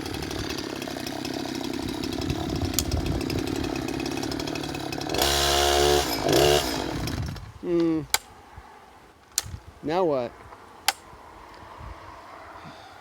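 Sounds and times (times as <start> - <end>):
chainsaw engine revving: 0.0 - 7.6.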